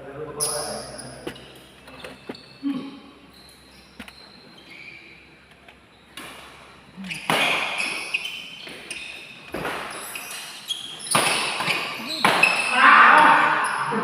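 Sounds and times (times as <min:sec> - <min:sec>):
racket hitting shuttlecock: 0:06.2 - 0:13.4.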